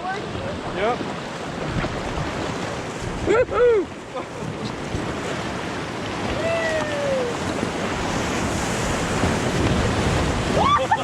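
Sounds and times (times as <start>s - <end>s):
whitewater rapids rushing: 0.0s - 11.0s
wind buffeting microphone: 0.0s - 11.0s
person shouting woo: 6.3s - 7.4s, 10.6s - 11.0s.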